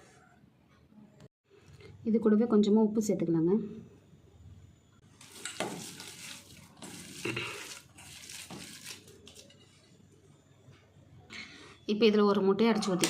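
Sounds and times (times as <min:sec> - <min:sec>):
hands mixing food in a bowl: 0:05.0 - 0:10.0.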